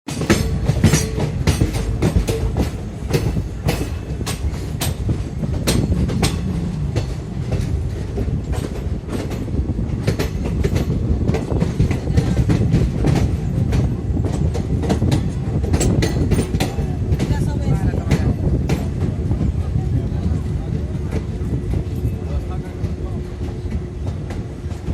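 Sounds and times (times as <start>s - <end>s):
train rumbling on rails: 0.0s - 24.9s
wheels clacking over rail joints: 0.1s - 19.4s.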